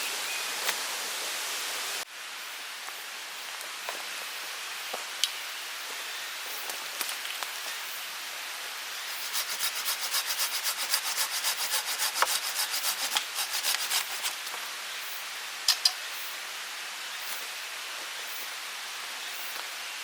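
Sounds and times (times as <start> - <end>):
hand saw cutting wood: 9.1 - 14.5.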